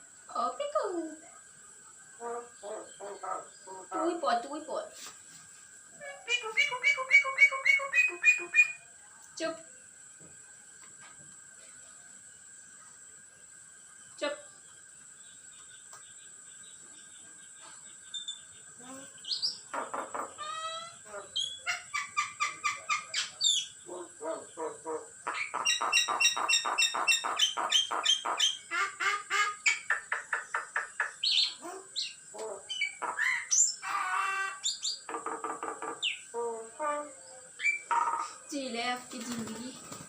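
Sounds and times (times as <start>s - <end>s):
myna bird chattering: 6.0s - 8.8s, 19.2s - 40.0s.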